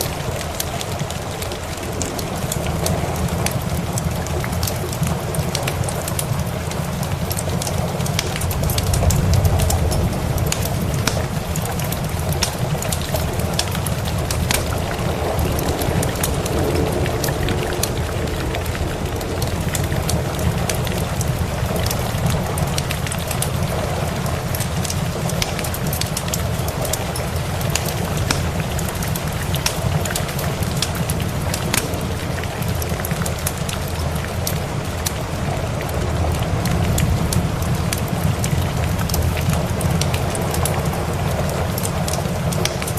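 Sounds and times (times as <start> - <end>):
steady rain: 0.0 - 42.9
wood fire crackling: 0.0 - 42.9
low rumble: 8.4 - 24.1.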